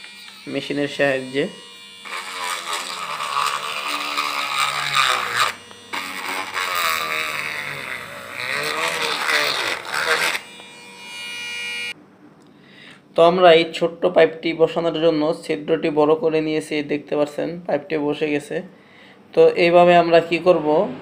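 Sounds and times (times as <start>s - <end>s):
electric drill cutting plastic: 0.0s - 12.0s.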